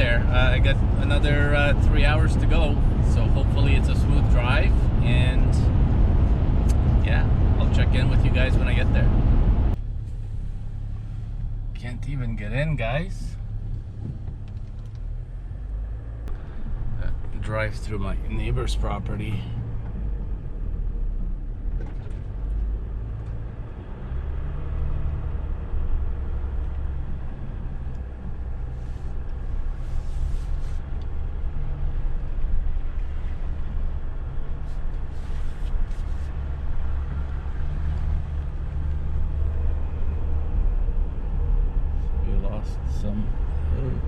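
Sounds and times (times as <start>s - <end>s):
vehicle rumbling over rough ground: 0.0s - 44.0s
short hissing scrapes: 28.7s - 29.2s, 29.8s - 30.8s, 34.6s - 36.4s.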